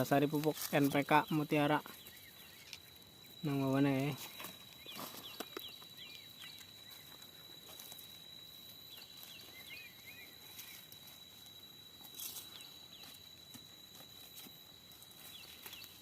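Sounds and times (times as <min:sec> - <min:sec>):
rustles or scrapes: 0:00.0 - 0:01.0, 0:10.4 - 0:16.0
small birds chirping: 0:00.0 - 0:16.0.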